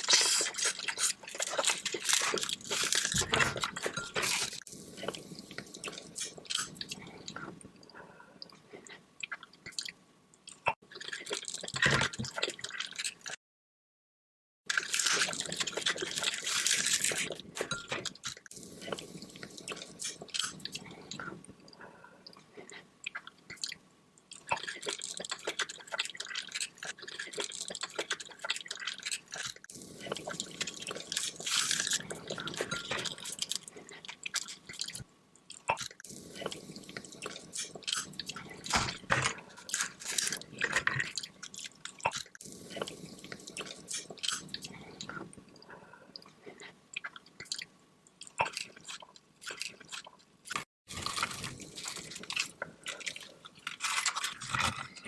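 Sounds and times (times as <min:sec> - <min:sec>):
wet chewing and smacking: 0:22.2 - 0:55.0.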